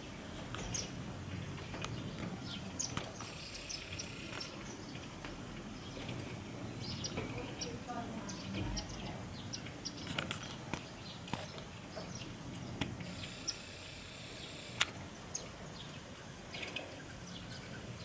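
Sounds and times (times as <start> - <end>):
small birds chirping: 0.0 - 18.0
steady high hiss: 0.0 - 18.0
sharp clicks: 14.4 - 15.0.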